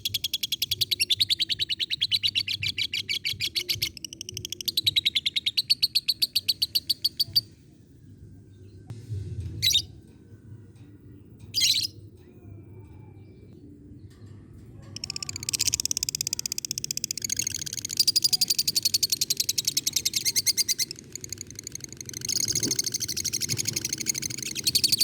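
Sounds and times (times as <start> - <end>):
lovebird chattering high chirps: 11.6 - 12.0, 15.0 - 25.0.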